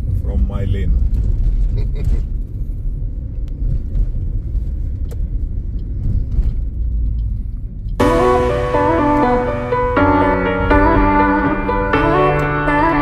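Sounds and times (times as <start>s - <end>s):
low steady rumble: 0.0s - 13.0s
plucked string music: 8.0s - 13.0s.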